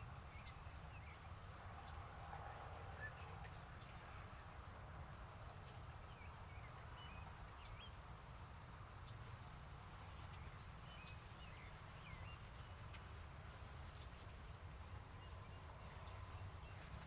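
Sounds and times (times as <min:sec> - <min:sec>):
curling bird chirps: 0:00.2 - 0:02.1, 0:10.0 - 0:17.0.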